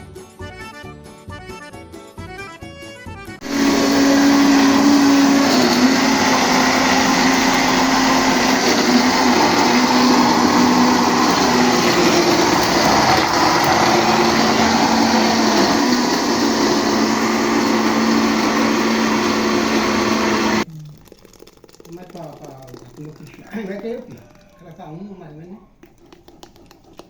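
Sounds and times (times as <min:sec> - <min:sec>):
kitchen appliance motor grinding corn: 0:03.4 - 0:20.7.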